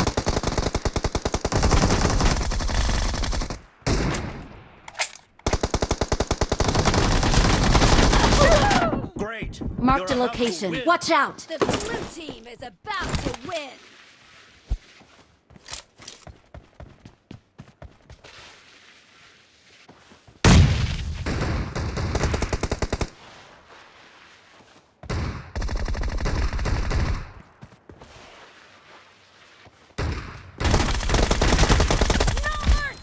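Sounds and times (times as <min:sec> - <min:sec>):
video game automatic gunfire: 0:00.0 - 0:03.6, 0:05.4 - 0:08.6, 0:25.6 - 0:27.4, 0:30.6 - 0:32.8.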